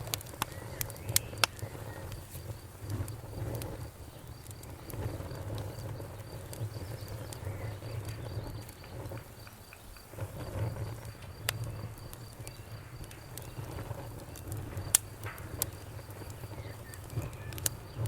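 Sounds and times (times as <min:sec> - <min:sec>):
campfire flames rumbling: 0:00.0 - 0:18.0
fire popping and crackling: 0:00.0 - 0:18.0.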